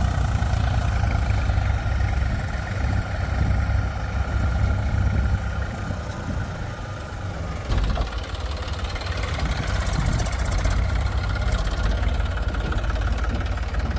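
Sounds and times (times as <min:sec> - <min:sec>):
diesel engine running: 0:00.0 - 0:13.9.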